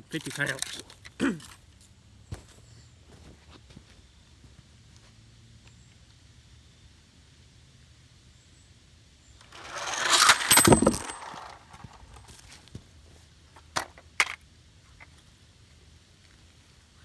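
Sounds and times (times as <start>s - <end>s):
rattle of small hard objects: 9.4s - 12.4s.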